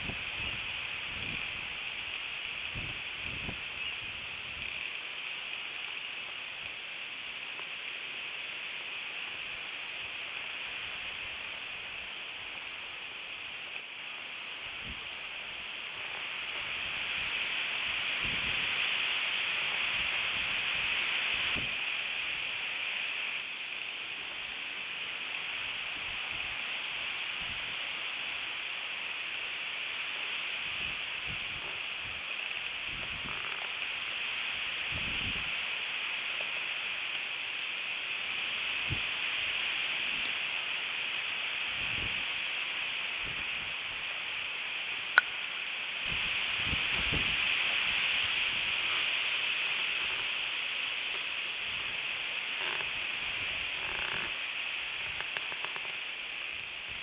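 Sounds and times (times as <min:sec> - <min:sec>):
strong wind on microphone: 0:00.0 - 0:04.9, 0:14.7 - 0:15.1, 0:16.6 - 0:21.9, 0:27.3 - 0:27.8, 0:30.6 - 0:33.6, 0:34.6 - 0:35.6, 0:38.8 - 0:39.2, 0:41.7 - 0:42.4, 0:43.2 - 0:44.0, 0:46.0 - 0:50.4, 0:51.6 - 0:55.8
steady hiss: 0:00.0 - 0:57.0
low rumbles from gusts: 0:14.6 - 0:22.4, 0:30.6 - 0:33.4, 0:46.0 - 0:57.0.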